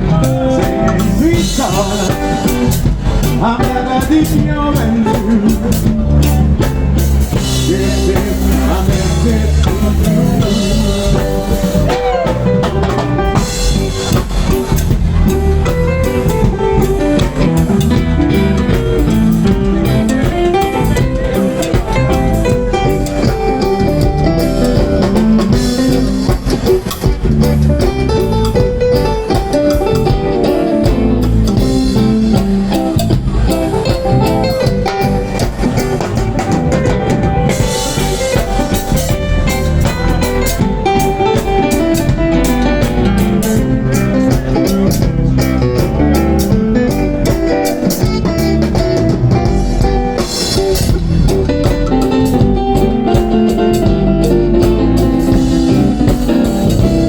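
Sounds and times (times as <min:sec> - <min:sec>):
live reggae band instrumental: 0:00.0 - 0:57.0.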